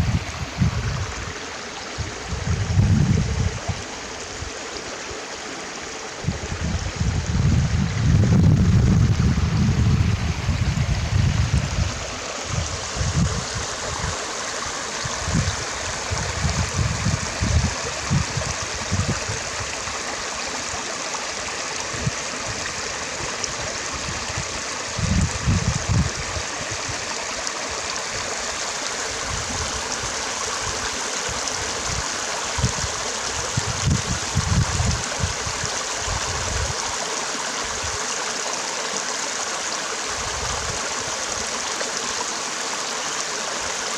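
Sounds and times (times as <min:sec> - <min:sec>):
stream water gurgling: 0:00.0 - 0:43.9
low rumbles: 0:06.3 - 0:12.0.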